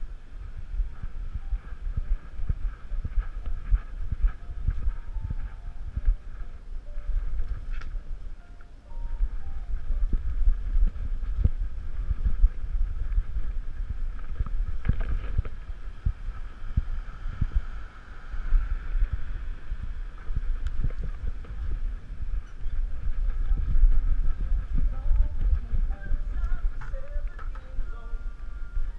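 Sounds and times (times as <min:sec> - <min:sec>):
wind buffeting microphone: 0:00.0 - 0:28.9
camera handling rumble: 0:13.0 - 0:15.7.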